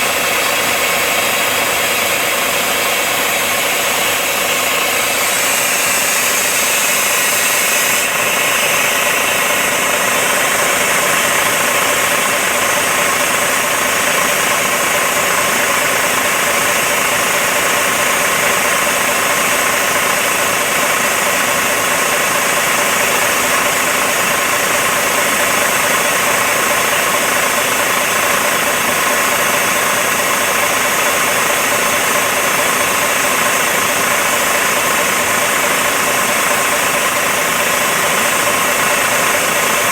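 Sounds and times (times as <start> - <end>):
air hissing from tyres: 4.5 - 16.7
truck engine idling: 8.1 - 39.9.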